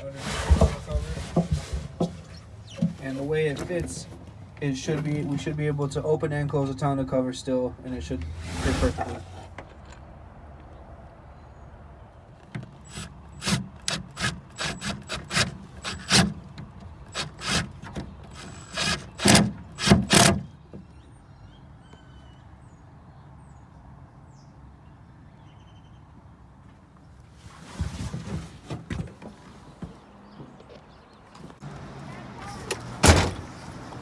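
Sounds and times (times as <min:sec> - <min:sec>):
bracket scraping and knocking: 0:00.3 - 0:04.4.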